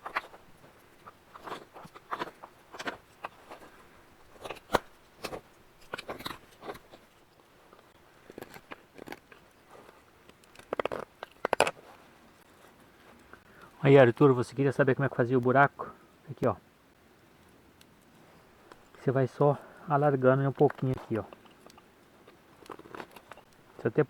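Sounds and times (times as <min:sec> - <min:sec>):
knife carving wood: 0:00.0 - 0:11.8, 0:20.6 - 0:23.6.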